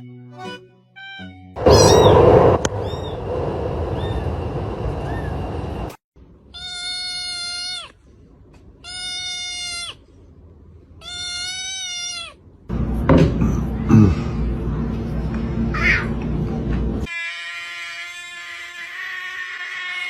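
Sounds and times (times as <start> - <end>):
steady rushing noise: 1.6 - 6.0
cat meowing: 6.6 - 8.0, 8.8 - 10.0, 11.0 - 12.4, 17.1 - 20.0.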